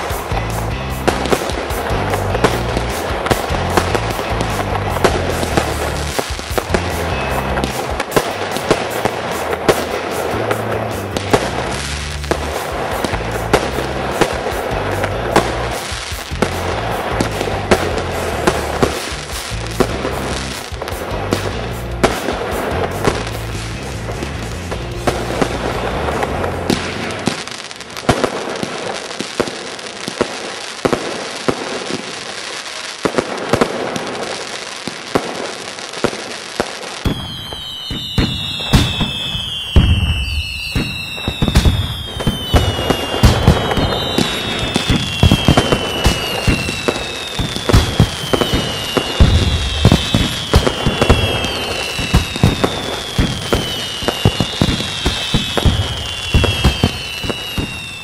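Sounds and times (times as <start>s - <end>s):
falling firework whistles: 0.0s - 1.8s, 11.0s - 58.0s
fireworks bangs and crackling: 0.0s - 58.0s.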